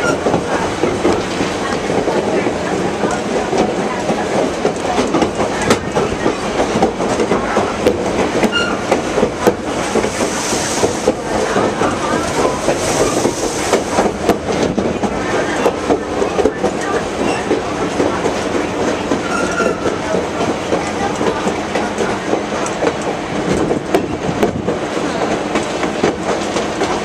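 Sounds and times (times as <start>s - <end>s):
train cars rumbling on track: 0.0s - 27.0s.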